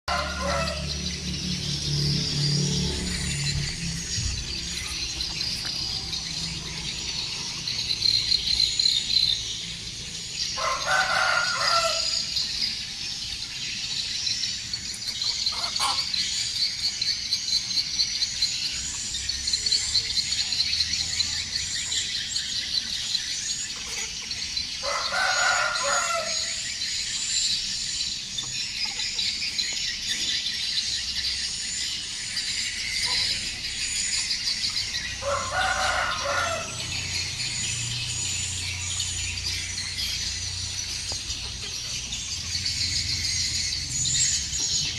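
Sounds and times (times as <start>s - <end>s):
rooster crowing: 0.1s - 1.0s, 10.6s - 12.4s, 24.8s - 26.6s, 35.2s - 37.1s
chicks chirping: 0.1s - 44.9s.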